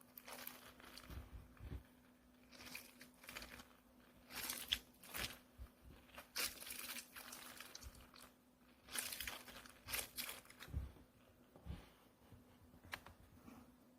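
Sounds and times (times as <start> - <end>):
plastic packaging crinkling: 0.0 - 1.3, 2.4 - 10.8.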